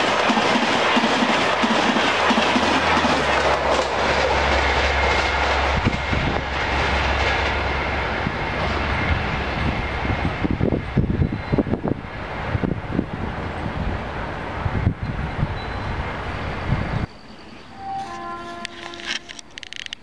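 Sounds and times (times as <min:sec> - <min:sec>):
train wheels clattering: 0:00.0 - 0:11.6
train low rumble: 0:00.0 - 0:20.0.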